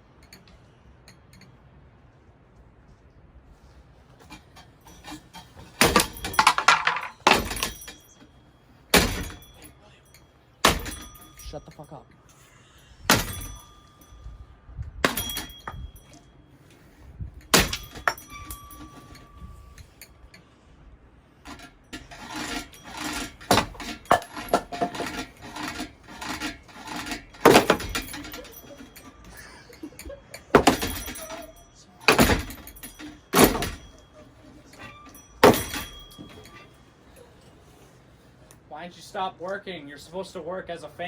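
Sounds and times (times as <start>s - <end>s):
rattling metal and glass parts: 4.2s - 14.4s, 15.0s - 20.4s, 21.4s - 37.8s
metallic ring: 4.2s - 20.6s, 21.4s - 37.9s.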